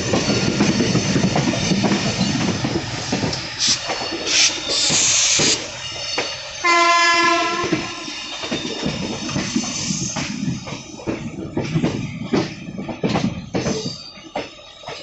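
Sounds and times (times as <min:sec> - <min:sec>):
train noise: 0:00.0 - 0:15.0
train horn blast: 0:06.6 - 0:07.9.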